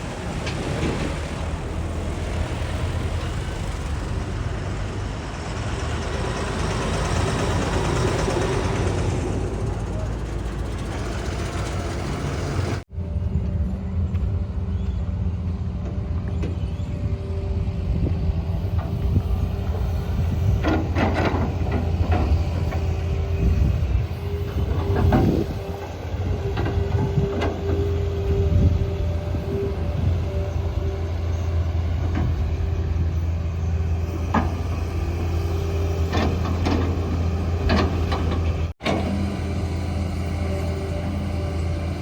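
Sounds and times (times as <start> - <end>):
heavy diesel machinery running: 0.0 - 42.0.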